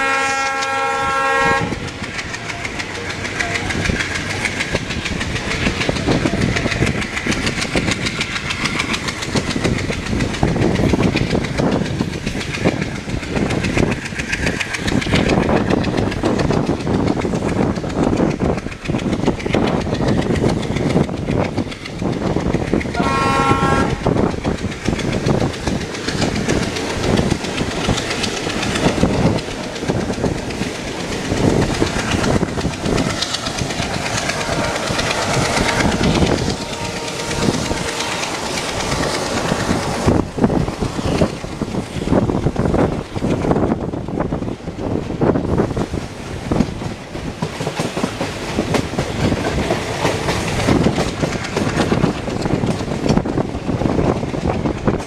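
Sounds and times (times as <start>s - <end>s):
locomotive horn blast: 0.0s - 1.8s, 23.0s - 24.0s, 35.7s - 38.4s
train wheels clattering on track: 0.0s - 55.0s.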